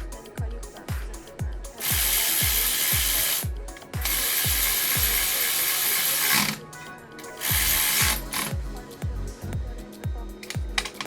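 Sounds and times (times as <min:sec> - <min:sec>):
background music with steady beat: 0:00.0 - 0:11.0
power tool running: 0:01.8 - 0:06.6, 0:07.3 - 0:08.6.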